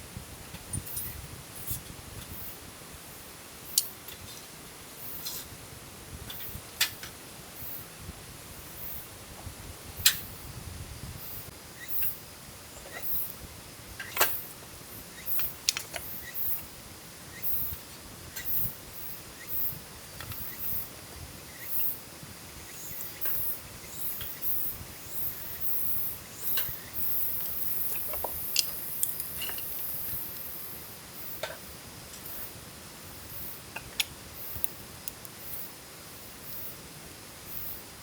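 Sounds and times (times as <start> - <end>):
insects calling in high bursts: 11.2 - 38.0.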